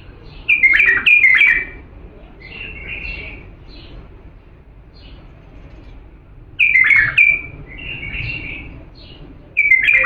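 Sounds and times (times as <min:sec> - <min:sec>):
bulbul singing: 0:00.0 - 0:04.0, 0:06.6 - 0:10.0.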